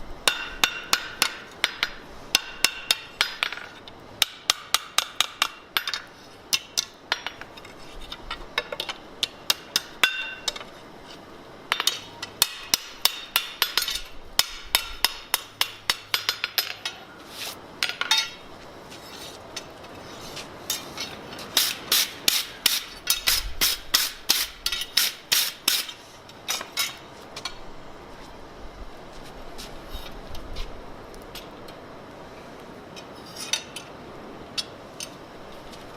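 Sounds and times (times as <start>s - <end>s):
hammer striking steel on anvil: 0.2s - 7.4s, 8.6s - 10.6s, 11.7s - 17.0s, 17.8s - 18.4s, 21.6s - 27.0s.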